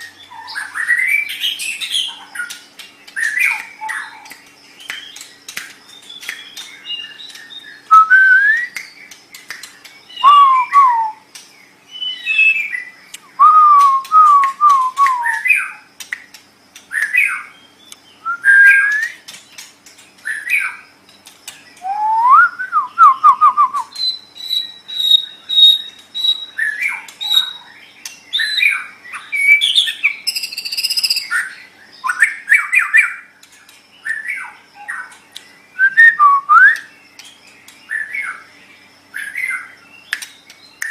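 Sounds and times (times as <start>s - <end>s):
bird singing whistled phrases: 5.9s - 9.2s, 10.0s - 11.3s, 11.9s - 15.8s, 16.9s - 19.3s, 21.8s - 27.6s, 28.3s - 33.2s, 35.7s - 37.0s.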